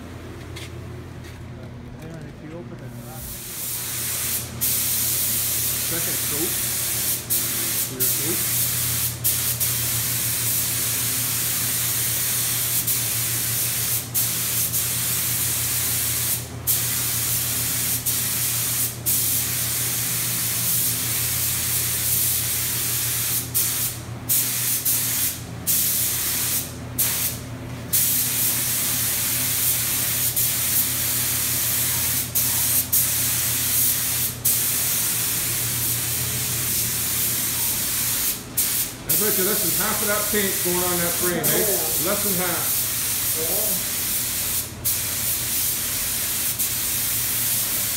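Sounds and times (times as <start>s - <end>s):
spray gun hissing: 3.2s - 47.9s.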